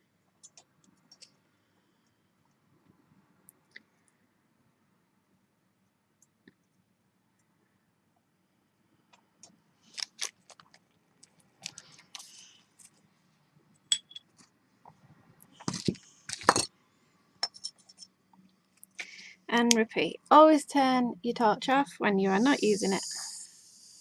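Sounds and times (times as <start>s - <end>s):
metal tools clicking and clinking: 13.9s - 14.2s, 15.7s - 16.7s, 17.4s - 18.1s.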